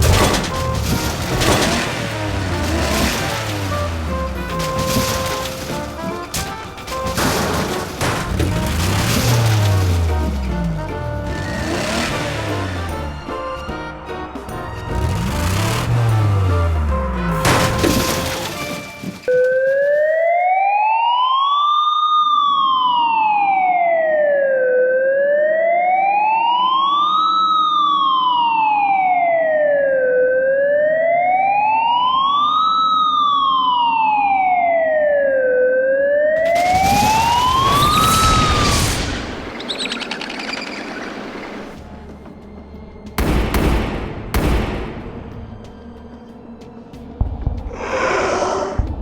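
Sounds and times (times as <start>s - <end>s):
crashing noise: 0.0s - 13.6s, 14.7s - 20.1s, 36.4s - 42.2s
police siren wailing: 0.0s - 13.7s, 14.4s - 41.8s.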